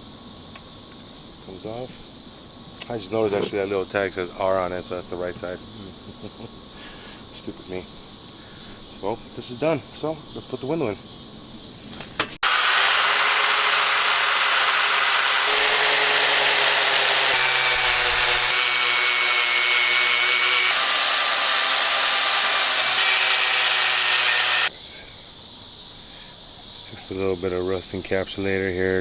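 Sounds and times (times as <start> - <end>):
handheld power tool running: 12.4 - 24.7.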